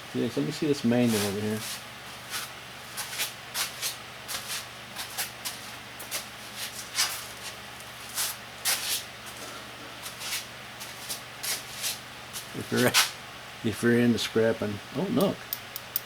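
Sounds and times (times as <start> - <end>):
faint steady hum: 9.2 - 16.0.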